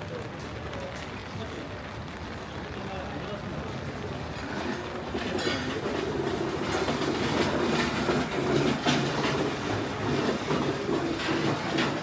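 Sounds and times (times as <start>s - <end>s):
rumbling and rattling: 3.3s - 12.0s.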